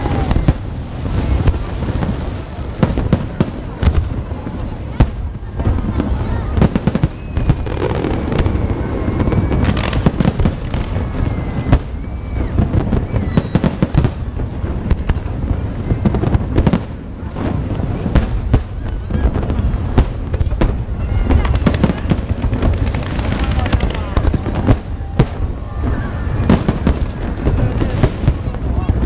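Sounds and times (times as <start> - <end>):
firework whistling: 0.0 - 29.0
fireworks bangs and crackles: 0.0 - 29.0.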